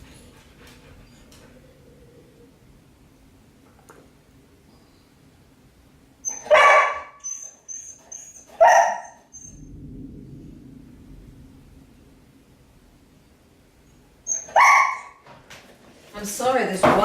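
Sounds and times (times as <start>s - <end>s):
dog barking: 6.3s - 7.2s, 8.6s - 9.2s, 14.3s - 15.2s
low rumble: 9.4s - 14.2s.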